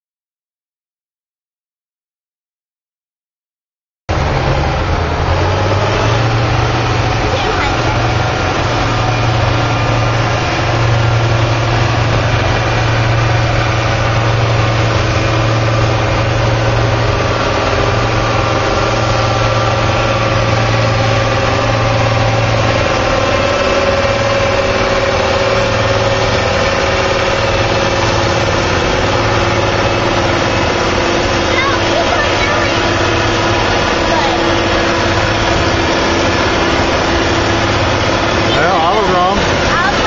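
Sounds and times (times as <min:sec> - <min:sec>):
tractor diesel engine idling: 0:04.1 - 0:40.0.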